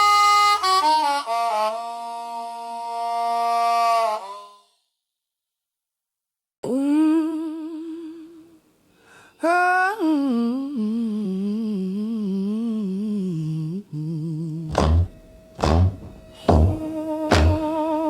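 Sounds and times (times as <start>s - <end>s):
woman humming: 9.8s - 18.0s.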